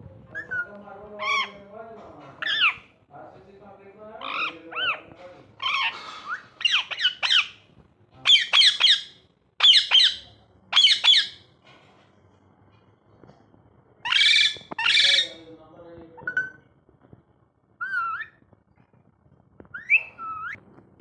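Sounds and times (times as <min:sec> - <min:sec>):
parrot squawking: 0:00.4 - 0:01.6, 0:02.4 - 0:02.9, 0:04.2 - 0:07.6, 0:08.2 - 0:11.4, 0:14.0 - 0:15.4, 0:17.8 - 0:18.4, 0:19.8 - 0:20.6.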